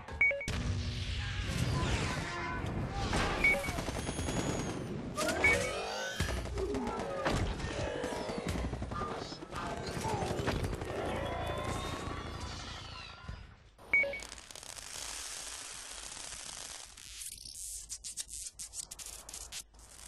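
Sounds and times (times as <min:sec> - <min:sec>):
rapid crackling like gunfire: 0:03.3 - 0:05.2.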